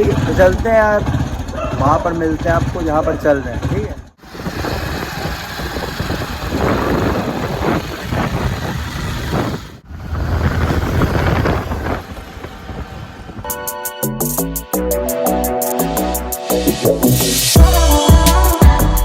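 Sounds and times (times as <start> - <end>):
wind buffeting microphone: 0.0 - 13.8
road vehicle running: 0.0 - 14.7.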